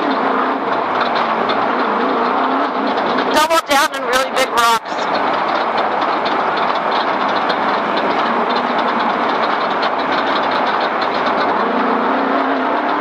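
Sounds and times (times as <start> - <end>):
rapid rattling and clatter: 0.0 - 13.0
vehicle engine and tyre noise: 0.0 - 13.0.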